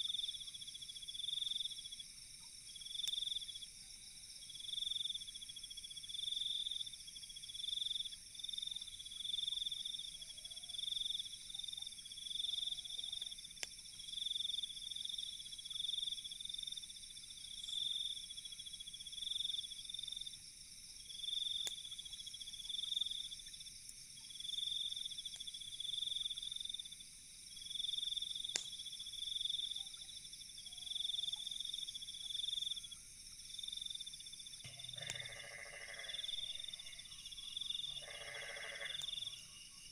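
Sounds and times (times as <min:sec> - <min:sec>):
insects trilling: 0:06.2 - 0:20.4, 0:21.0 - 0:39.9
steady high insect buzzing: 0:34.7 - 0:39.9.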